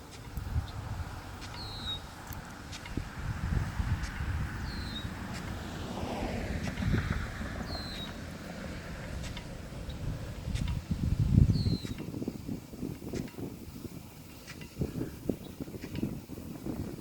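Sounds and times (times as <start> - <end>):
sprinkler water stream hissing: 0.0 - 17.0
wind rumble on microphone: 0.0 - 17.0.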